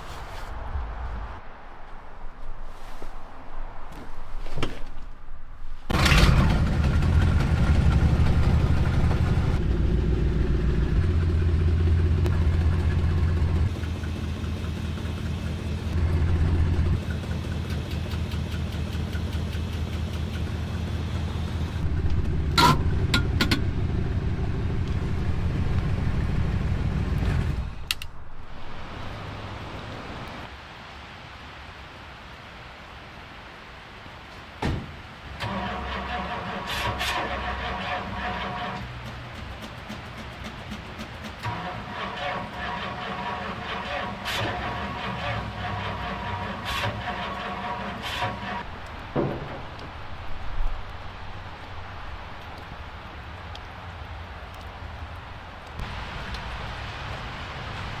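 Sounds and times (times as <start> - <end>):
car engine running: 5.9 - 27.7.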